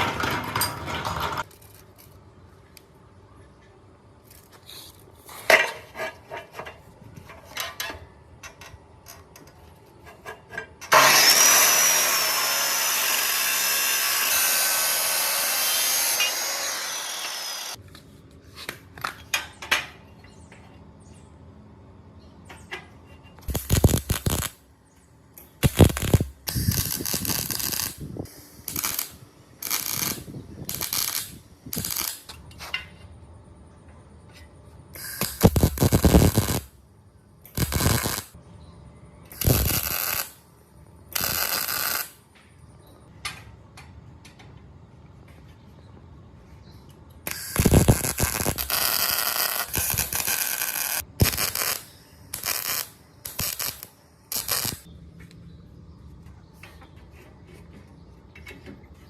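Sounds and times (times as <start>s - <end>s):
power tool running: 10.9s - 17.8s.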